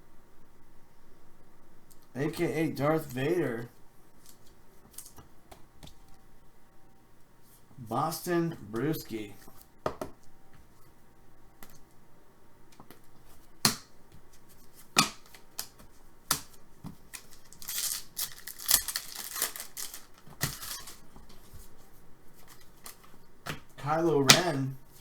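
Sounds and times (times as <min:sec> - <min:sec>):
cards sliding and rustling: 0:14.3 - 0:23.2
cards snapping: 0:15.0 - 0:21.4.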